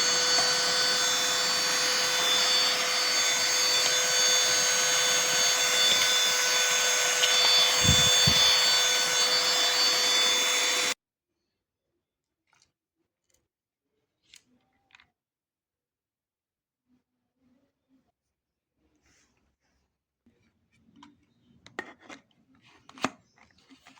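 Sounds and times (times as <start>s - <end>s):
handheld vacuum cleaner whine: 0.0s - 11.0s.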